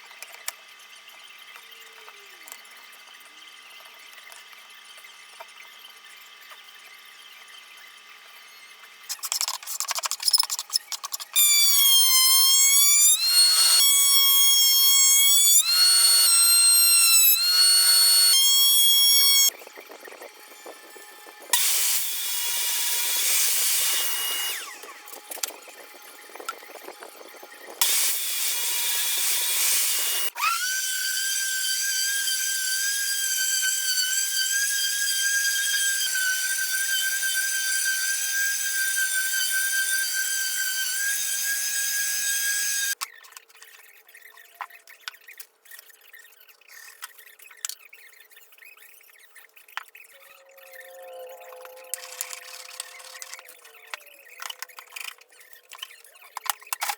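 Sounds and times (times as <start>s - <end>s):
power tool whining on wood: 11.2s - 43.0s, 50.4s - 56.0s.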